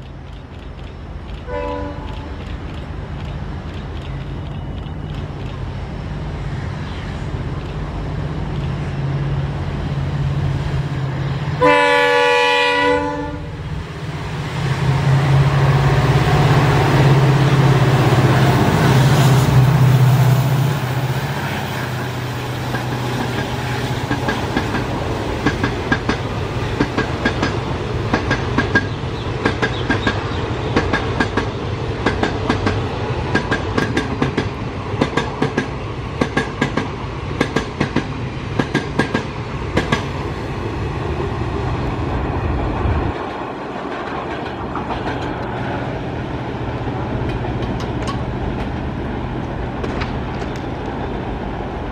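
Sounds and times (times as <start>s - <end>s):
locomotive engine rumbling: 0.0s - 51.9s
locomotive horn blast: 1.5s - 2.4s, 11.6s - 13.6s
train wheels clattering: 21.7s - 40.2s, 43.1s - 45.7s.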